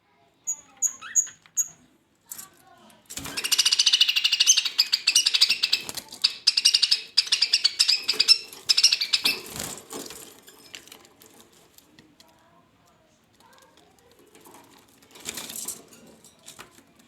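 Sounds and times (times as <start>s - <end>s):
budgerigars chattering: 3.4s - 9.5s.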